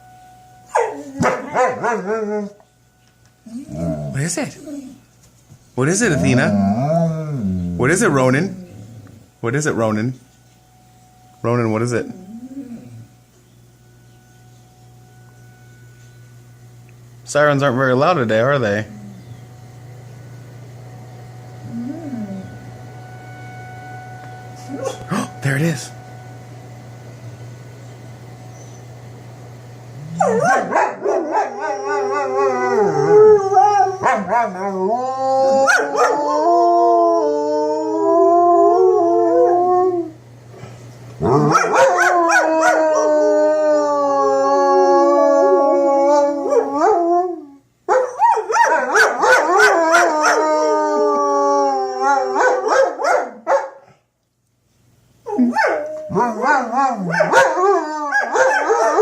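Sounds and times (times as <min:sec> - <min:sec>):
dogs howling: 0:00.7 - 0:02.7, 0:03.4 - 0:05.1, 0:05.8 - 0:09.4, 0:11.9 - 0:13.2, 0:18.4 - 0:19.5, 0:21.5 - 0:26.0, 0:30.0 - 0:40.2, 0:41.2 - 0:53.8, 0:55.2 - 0:59.0.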